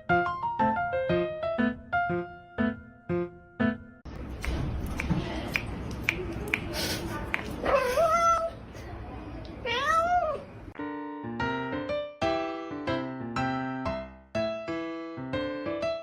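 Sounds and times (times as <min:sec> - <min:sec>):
cat meowing: 0:07.6 - 0:08.6, 0:09.6 - 0:10.5.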